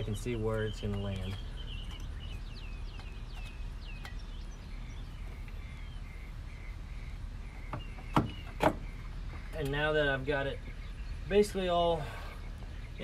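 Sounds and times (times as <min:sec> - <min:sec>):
low outdoor rumble: 0:00.0 - 0:13.0
songbird chirping: 0:00.0 - 0:13.0.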